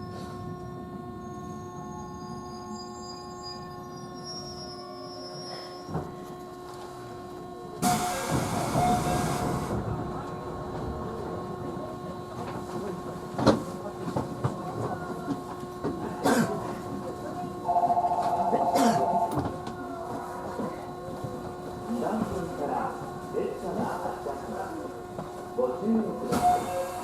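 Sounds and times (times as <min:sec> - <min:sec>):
train interior hum: 0:05.9 - 0:27.0
train rumble: 0:05.9 - 0:27.0.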